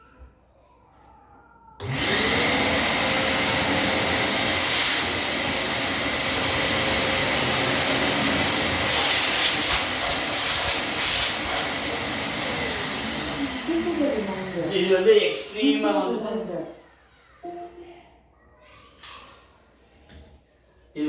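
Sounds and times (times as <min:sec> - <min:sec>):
vacuum cleaner running: 0:01.8 - 0:15.8.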